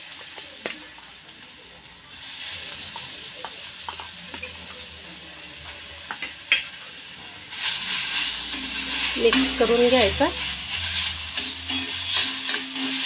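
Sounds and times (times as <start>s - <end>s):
eggplant sizzling in hot oil: 0.0s - 13.0s
metal spoon clicking on pan: 11.4s - 13.0s.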